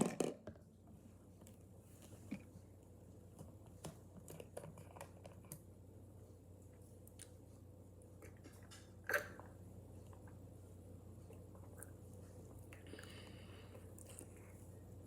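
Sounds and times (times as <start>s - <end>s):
faint chewing: 6.7s - 7.5s, 11.1s - 15.0s.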